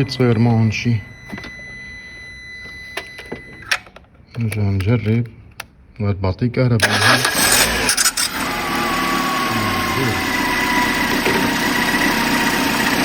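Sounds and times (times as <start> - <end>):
car engine starting and idling: 0.0 - 1.8, 6.8 - 13.0.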